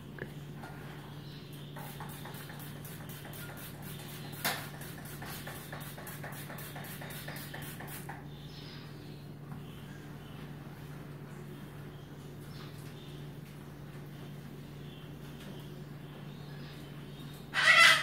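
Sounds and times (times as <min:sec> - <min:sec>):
scrubbing on a wall: 0:01.8 - 0:08.2.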